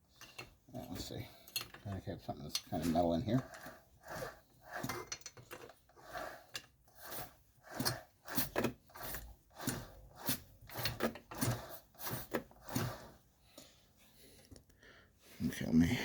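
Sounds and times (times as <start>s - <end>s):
flywheel turning mechanical rattles: 7.0s - 13.0s.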